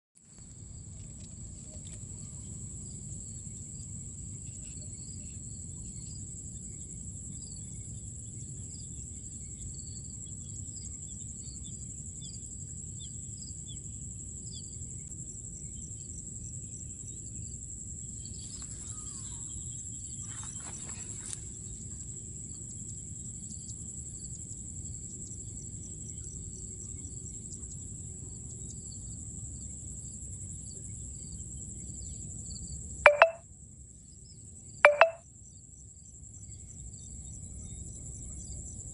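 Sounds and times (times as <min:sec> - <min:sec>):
insects trilling: 0:15.6 - 0:25.0
bird chirps: 0:33.1 - 0:33.4, 0:34.9 - 0:35.2.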